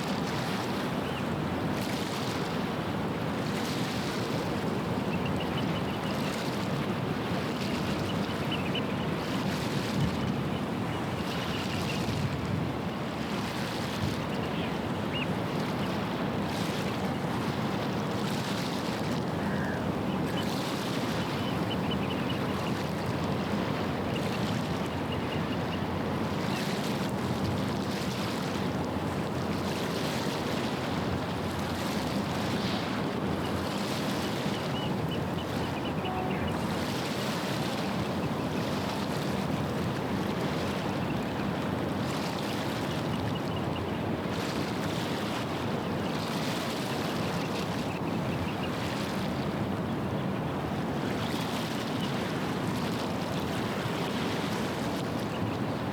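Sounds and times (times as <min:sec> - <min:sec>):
ship engine hum: 0:34.9 - 0:38.1.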